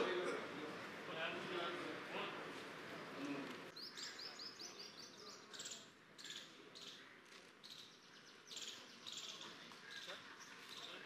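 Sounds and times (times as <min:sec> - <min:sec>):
low background noise: 0:00.0 - 0:11.0
small birds chirping: 0:03.7 - 0:11.0.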